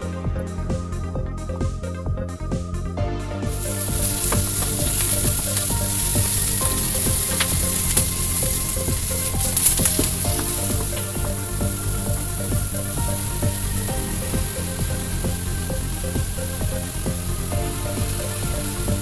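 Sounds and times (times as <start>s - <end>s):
chicken sizzling in a frying pan: 3.6s - 11.2s.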